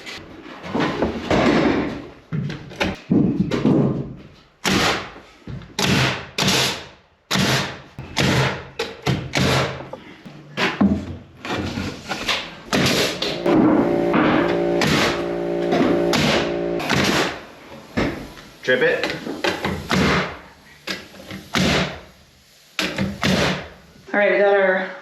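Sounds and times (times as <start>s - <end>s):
construction thumps and bangs: 8.0s - 11.2s.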